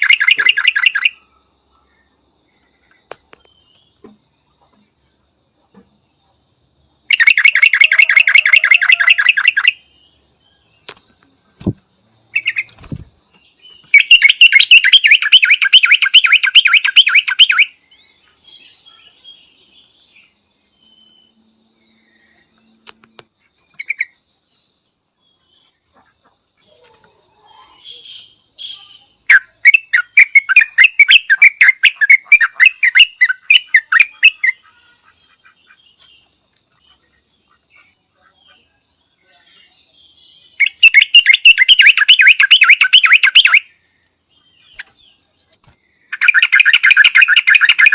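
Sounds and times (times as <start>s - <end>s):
bird chattering calls: 0.0s - 1.2s, 13.8s - 17.7s, 27.7s - 36.1s, 40.6s - 43.6s, 46.1s - 47.9s.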